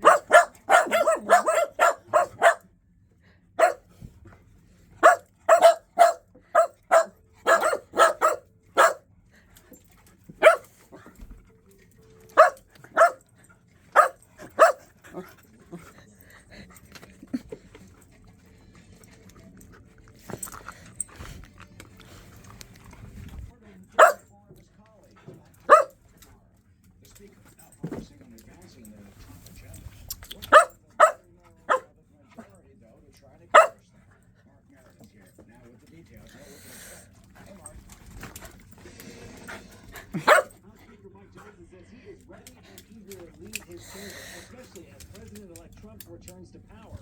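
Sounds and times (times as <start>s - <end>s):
dog barking: 0.0s - 2.6s, 3.6s - 3.9s, 5.0s - 9.1s, 10.4s - 11.1s, 12.3s - 13.2s, 13.9s - 15.2s, 24.0s - 24.2s, 25.6s - 26.0s, 30.5s - 31.9s, 33.5s - 33.8s, 40.2s - 40.6s.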